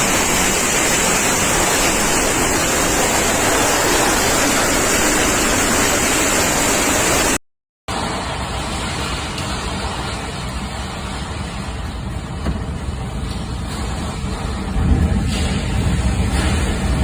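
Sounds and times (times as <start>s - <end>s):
storm-force wind rushing: 0.0s - 7.4s.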